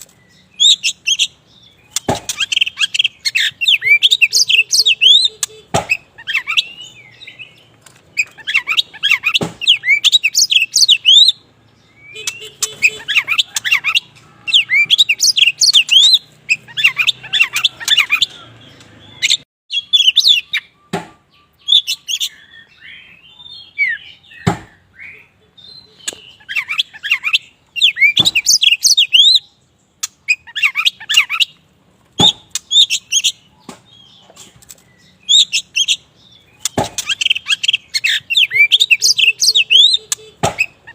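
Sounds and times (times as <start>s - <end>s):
sharp bird clicks: 0.0s - 11.2s, 30.0s - 31.6s, 32.2s - 40.9s
bird whistling song: 0.0s - 31.6s, 32.2s - 40.9s.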